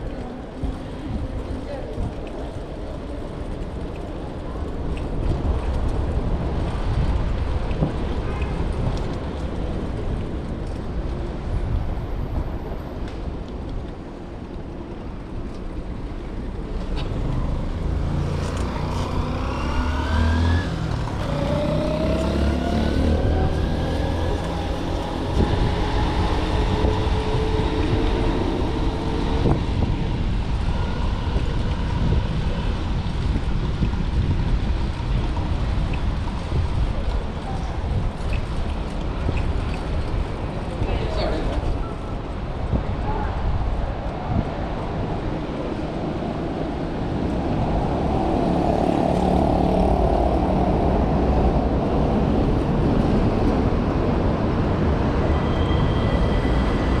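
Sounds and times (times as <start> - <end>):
city traffic rumble: 0.0 - 57.0
motor vehicle accelerating: 16.9 - 34.2, 45.8 - 57.0.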